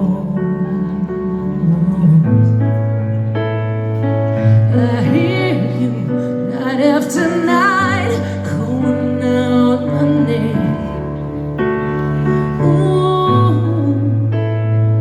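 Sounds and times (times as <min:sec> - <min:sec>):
woman singing with vibrato: 0:00.0 - 0:02.8, 0:04.5 - 0:11.5, 0:12.4 - 0:14.5
piano chords: 0:00.0 - 0:15.0.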